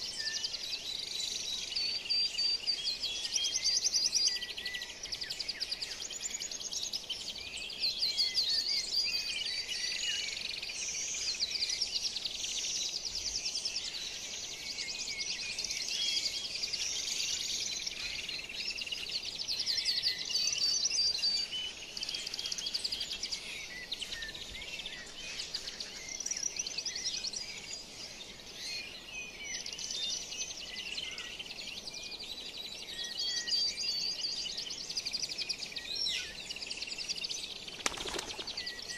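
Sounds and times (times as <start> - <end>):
birds chirping and trilling: 0.0 - 38.9.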